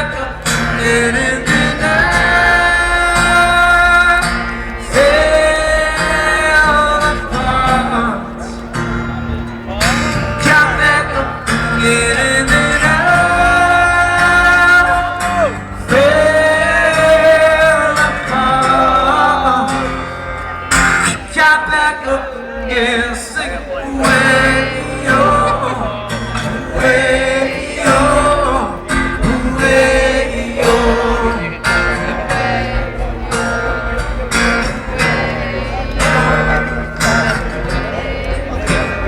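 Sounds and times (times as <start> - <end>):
strummed acoustic guitar: 0.0 - 39.0
person singing: 9.7 - 39.0.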